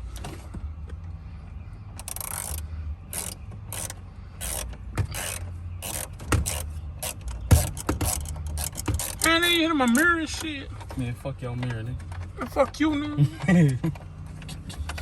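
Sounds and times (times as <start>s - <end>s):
socket ratchet clicking: 2.0s - 10.1s.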